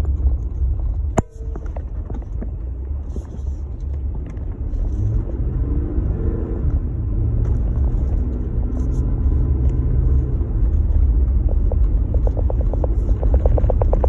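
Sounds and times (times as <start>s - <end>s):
engine and road noise rumble: 0.0s - 14.0s
rapid clicks: 11.5s - 14.0s.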